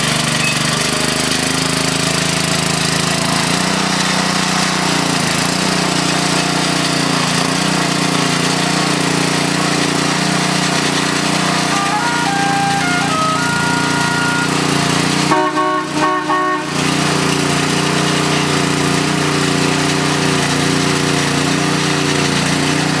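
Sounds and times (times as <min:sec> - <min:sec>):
small gas engine running: 0:00.0 - 0:23.0
horn blasts: 0:11.4 - 0:17.4.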